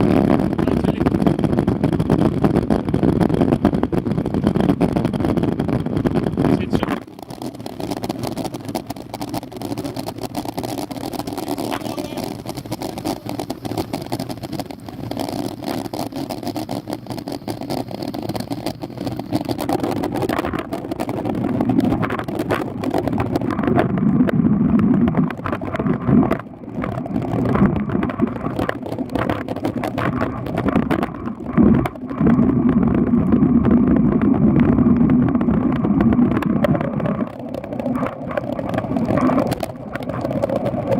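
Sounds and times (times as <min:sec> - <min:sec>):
bicycle road rumble: 0:00.0 - 0:40.9
wind noise: 0:00.0 - 0:40.9.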